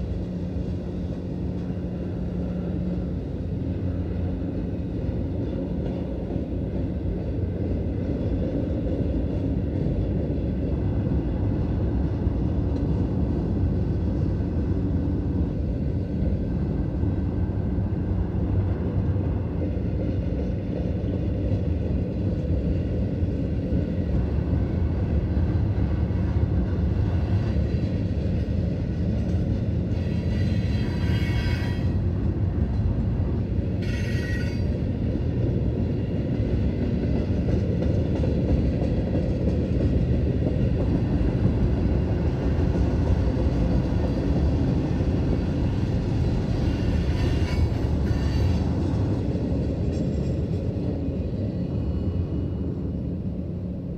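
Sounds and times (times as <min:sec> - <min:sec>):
train wheels rumbling on rail: 0:00.0 - 0:53.9
high-pitched wheel squeal: 0:30.0 - 0:32.0, 0:33.8 - 0:34.7.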